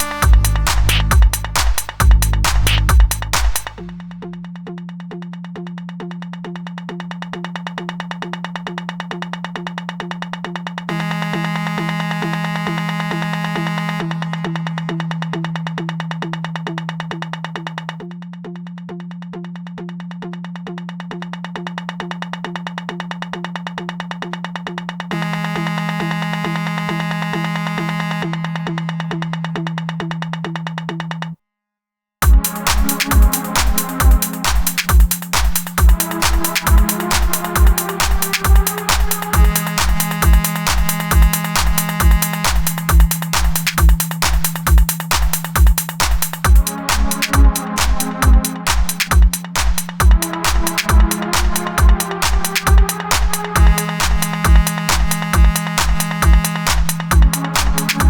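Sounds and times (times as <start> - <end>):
bright synth chords: 0.0 - 3.4, 32.2 - 58.0
kick drum beat: 0.0 - 4.0, 32.2 - 58.0
low synthesizer tone: 0.0 - 4.7, 46.4 - 58.0.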